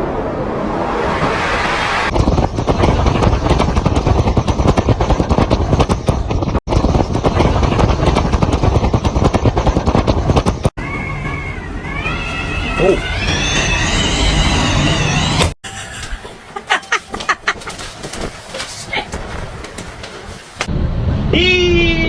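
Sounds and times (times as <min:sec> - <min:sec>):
strong gusting wind: 0:00.0 - 0:05.8.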